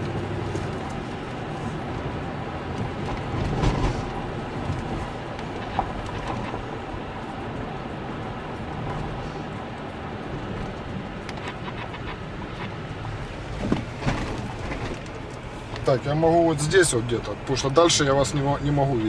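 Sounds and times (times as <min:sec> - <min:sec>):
vehicle over rough ground: 0:00.0 - 0:19.0
vehicle jolts: 0:02.7 - 0:07.3, 0:10.3 - 0:19.0.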